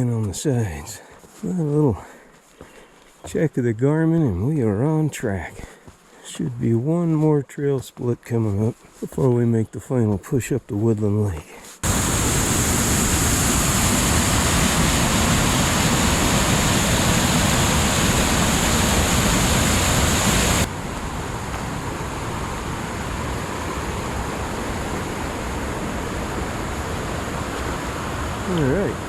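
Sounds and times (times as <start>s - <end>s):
rushing mountain water: 11.8s - 29.0s.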